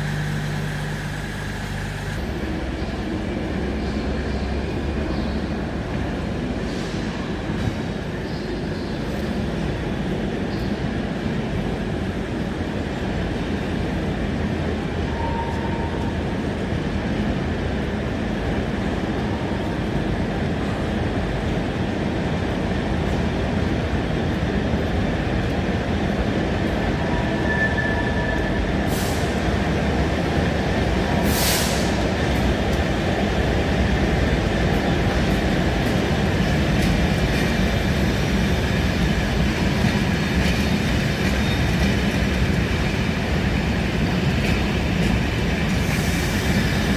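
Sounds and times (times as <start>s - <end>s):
train wheels rumbling on rails: 0.0s - 46.9s
brief hisses: 31.3s - 32.0s.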